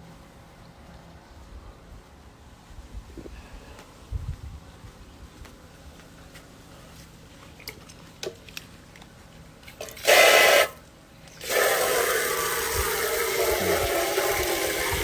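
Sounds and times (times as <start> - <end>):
water gushing: 9.8 - 10.8, 11.4 - 15.0
running water stream: 11.3 - 15.0.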